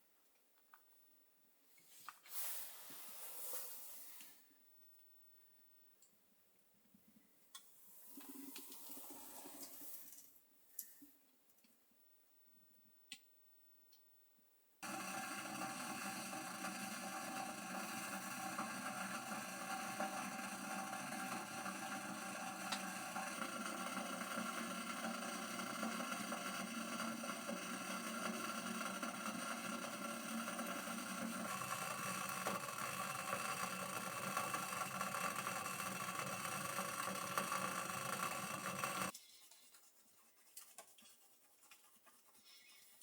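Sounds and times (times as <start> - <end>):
hiss: 2.2 - 4.4
machine hum with fixed tones: 14.8 - 39.1.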